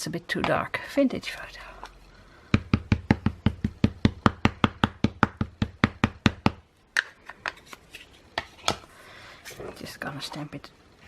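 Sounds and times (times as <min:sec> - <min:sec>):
ink pad tapping on stamp: 0:02.5 - 0:06.6.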